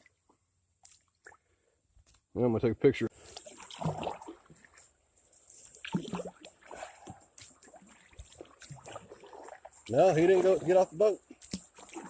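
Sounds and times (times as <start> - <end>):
water sloshing against hull: 3.2 - 12.0.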